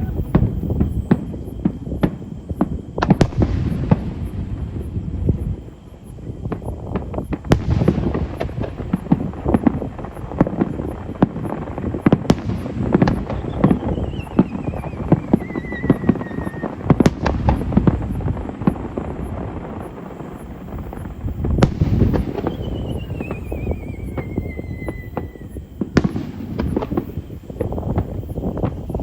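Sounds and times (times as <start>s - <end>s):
falling firework whistle: 0.0s - 4.0s, 11.4s - 18.9s, 19.7s - 29.0s
fireworks crackling: 0.0s - 29.0s
fireworks shells bursting: 19.7s - 29.0s.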